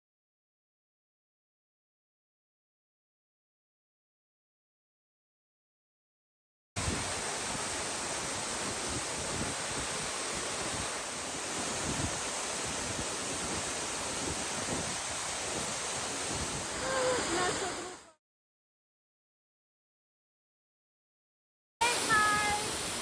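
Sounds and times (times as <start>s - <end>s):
waterfall rushing: 6.8s - 18.1s, 21.8s - 23.0s.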